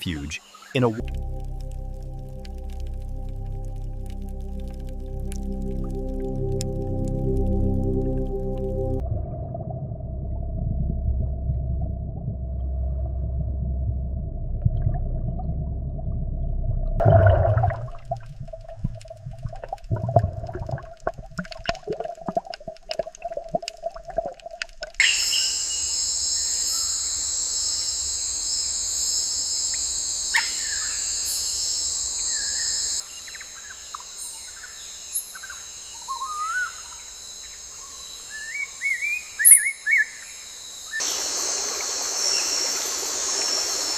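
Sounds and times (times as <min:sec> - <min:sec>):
insect chorus: 0:00.0 - 0:02.8, 0:25.0 - 0:43.9
low rumble: 0:01.0 - 0:21.3.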